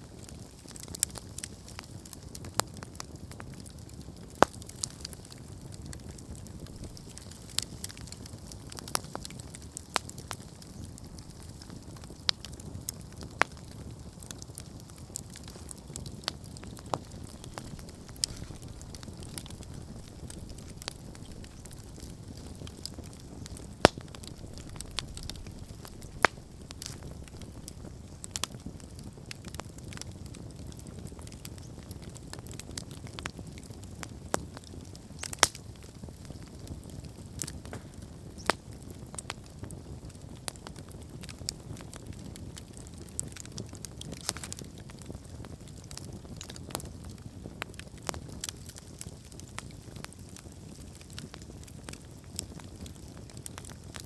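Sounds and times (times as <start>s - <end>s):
campfire flames rumbling: 0.0s - 54.0s
fire crackling and popping: 0.0s - 54.0s.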